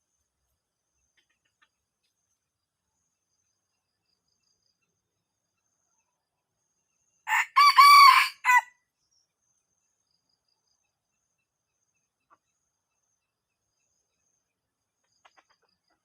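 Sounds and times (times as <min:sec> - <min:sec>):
rooster crowing: 0:07.3 - 0:08.7.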